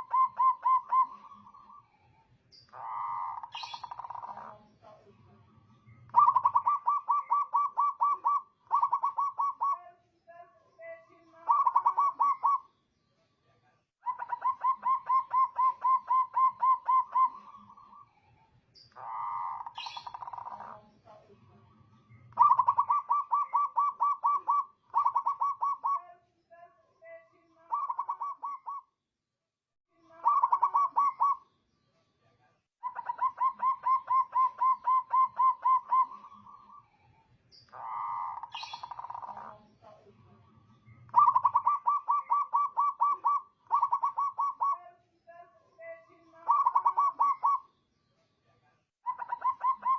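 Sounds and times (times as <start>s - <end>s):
dove cooing: 0.0s - 1.9s, 2.7s - 5.1s, 5.9s - 9.8s, 11.4s - 12.7s, 14.0s - 18.1s, 19.0s - 21.2s, 22.2s - 26.0s, 27.7s - 28.9s, 30.2s - 31.4s, 32.8s - 36.8s, 37.7s - 40.1s, 41.1s - 44.9s, 46.4s - 47.7s, 49.1s - 49.9s.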